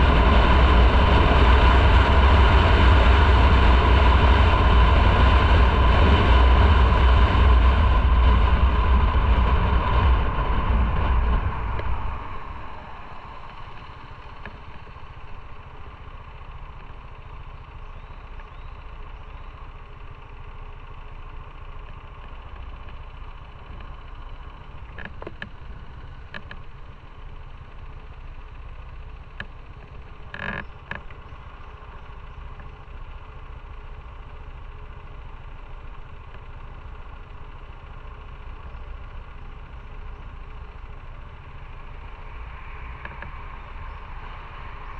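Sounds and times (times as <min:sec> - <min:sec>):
rushing wind: 0:00.0 - 0:16.8
motorcycle engine: 0:00.0 - 0:44.9
motorcycle engine idling: 0:00.0 - 0:44.9.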